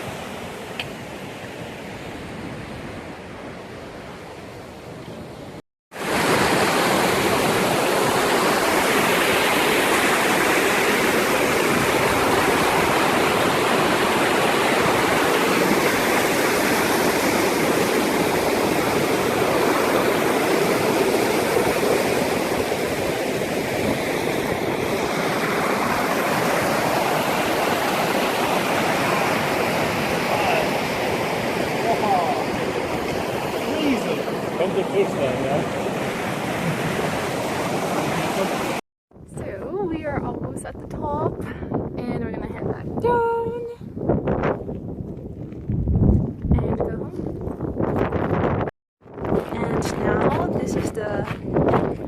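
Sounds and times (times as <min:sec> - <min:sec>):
water rushing: 0:00.0 - 0:38.8.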